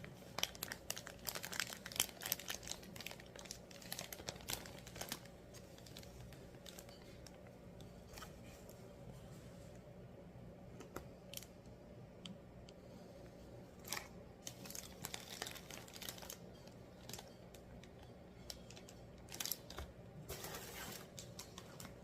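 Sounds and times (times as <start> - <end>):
plastic packaging crinkling: 0.0 - 7.5, 13.8 - 22.0
faint steady hum: 0.0 - 22.0.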